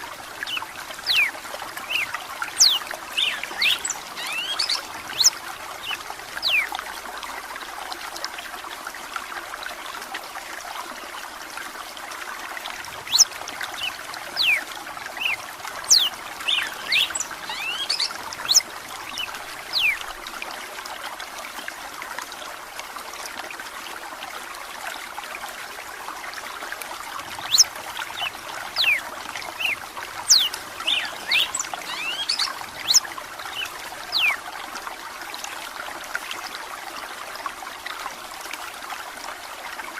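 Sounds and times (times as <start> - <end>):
running water rushing: 0.0 - 39.9
bird whistling song: 0.4 - 1.3, 1.9 - 6.7, 13.0 - 14.6, 15.2 - 18.6, 19.2 - 20.0, 27.4 - 29.0, 29.6 - 34.4.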